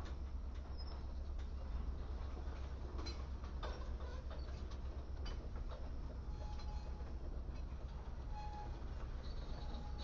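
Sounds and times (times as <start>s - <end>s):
faint thin wheel squeal: 6.3s - 7.1s, 8.3s - 10.0s.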